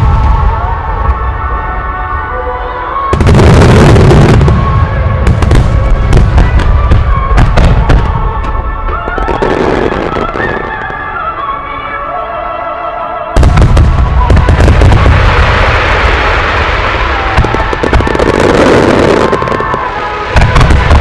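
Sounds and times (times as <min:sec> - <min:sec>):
fireworks bursting: 0:03.1 - 0:11.5, 0:13.4 - 0:21.0.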